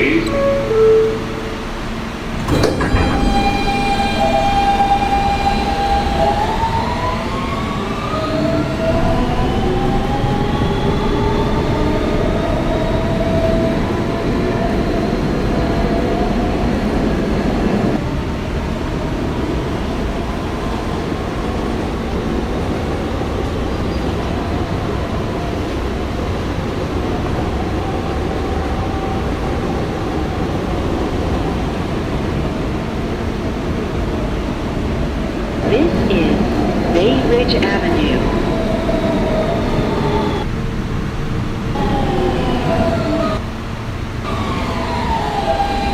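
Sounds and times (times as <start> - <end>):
wheels rumbling on rail: 0.0 - 36.9, 38.2 - 45.9
subway traction motors whining: 0.0 - 45.9.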